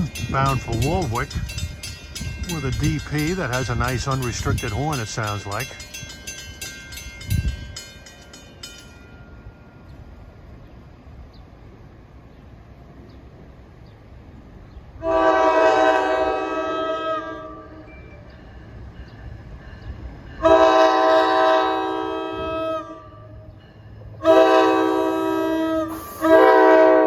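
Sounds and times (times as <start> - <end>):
bell ringing rapidly: 0.0 - 9.3
locomotive air horn blast: 15.0 - 17.8, 20.4 - 23.3, 24.2 - 27.0.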